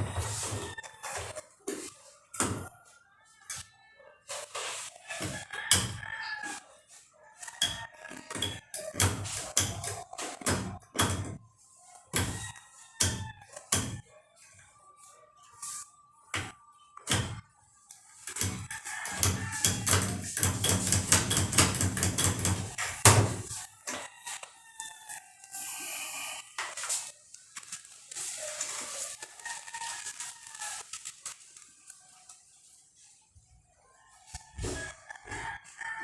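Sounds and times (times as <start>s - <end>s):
rooster crowing: 0.0s - 1.3s, 5.0s - 8.6s, 18.4s - 25.5s, 34.1s - 36.0s.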